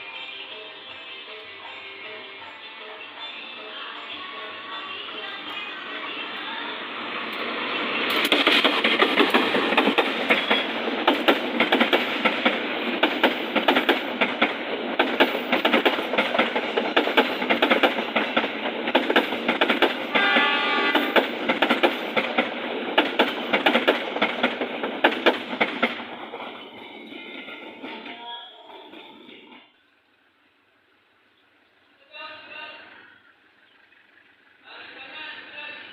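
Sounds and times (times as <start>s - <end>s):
train wheels clacking over rails: 7.3s - 29.8s
train horn blast: 20.1s - 21.3s.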